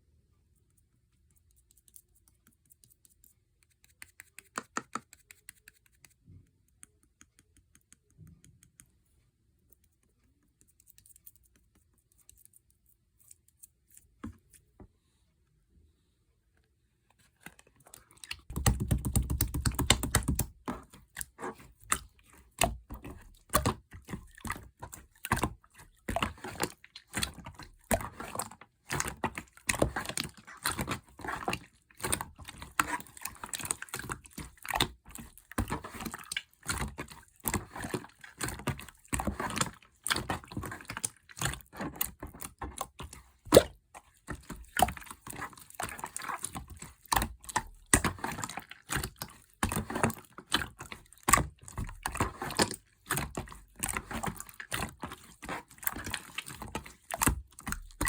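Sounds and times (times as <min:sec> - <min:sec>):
slime squishing with sticky clicks: 0:17.4 - 0:58.0.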